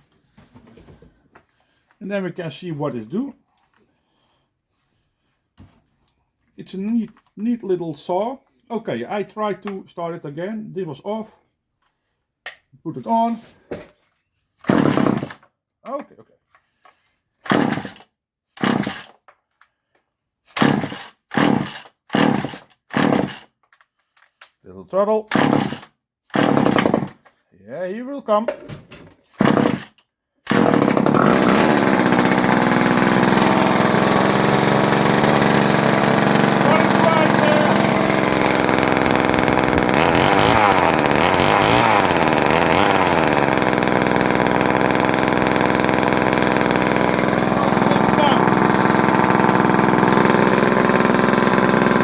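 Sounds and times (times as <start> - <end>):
chainsaw engine cranking: 14.6 - 15.5, 17.4 - 19.3, 20.5 - 24.4, 25.3 - 27.3, 29.3 - 52.0.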